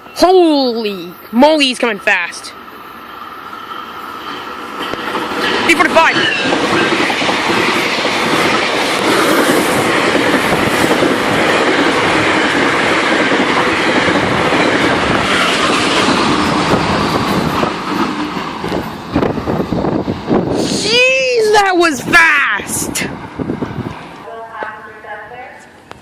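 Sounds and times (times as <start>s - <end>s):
train passing at speed: 0.0s - 26.0s
wheels clattering on rails: 3.5s - 20.5s.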